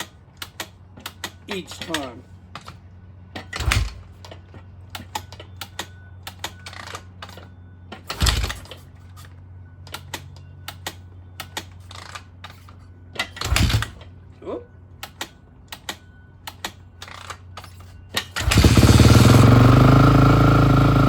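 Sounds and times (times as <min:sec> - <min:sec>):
motorcycle kick-starter thud: 0:03.4 - 0:04.2, 0:13.2 - 0:14.0.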